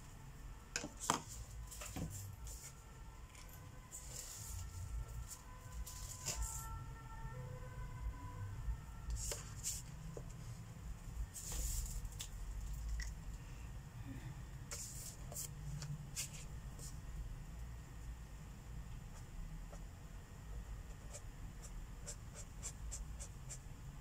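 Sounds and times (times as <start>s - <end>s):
marker scratching on paper: 20.9s - 23.6s.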